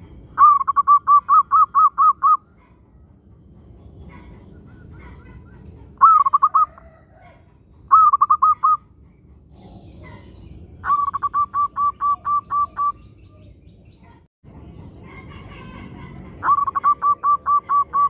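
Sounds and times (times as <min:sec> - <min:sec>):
low steady rumble: 0:00.0 - 0:18.0
dove cooing: 0:04.1 - 0:08.8, 0:10.8 - 0:13.5, 0:15.2 - 0:18.0.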